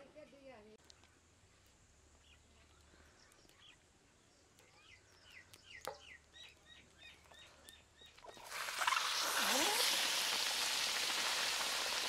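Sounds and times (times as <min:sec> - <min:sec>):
small bird chirping: 0:00.2 - 0:09.7.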